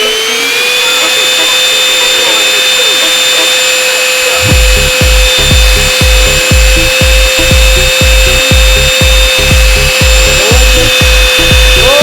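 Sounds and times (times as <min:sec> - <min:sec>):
small electric motor whining: 0:00.0 - 0:12.0
music with thumping beat: 0:04.4 - 0:12.0.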